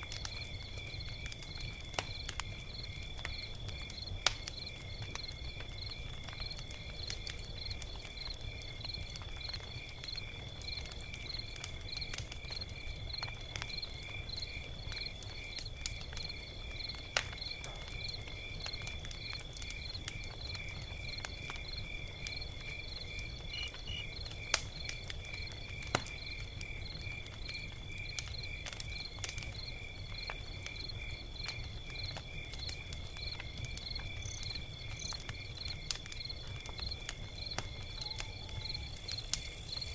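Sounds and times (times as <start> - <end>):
log fire crackling and popping: 0.0 - 39.9
insect chirping: 11.4 - 39.9.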